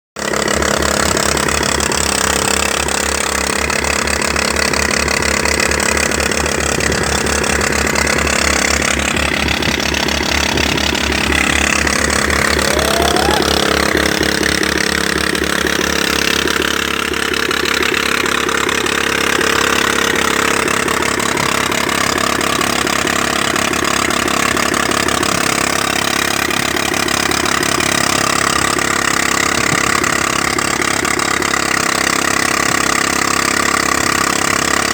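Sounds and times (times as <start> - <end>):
rapid engine beat: 0.2 - 34.9
threshing machine rushing noise: 10.7 - 16.0.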